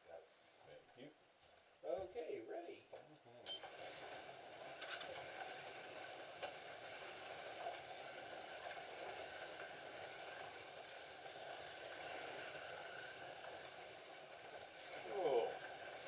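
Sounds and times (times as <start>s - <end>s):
slot cars whirring on track: 3.5s - 16.0s.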